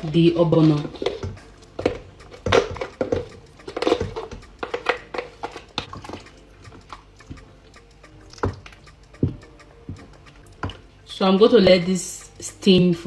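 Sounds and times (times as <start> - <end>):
utensil knocking and scraping in pot: 0.8 - 10.9.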